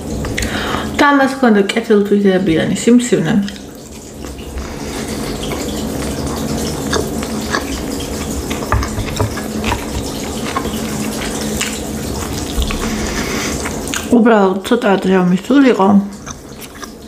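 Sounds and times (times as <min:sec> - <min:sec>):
wet sticky chewing: 0:03.5 - 0:14.2, 0:15.7 - 0:17.0.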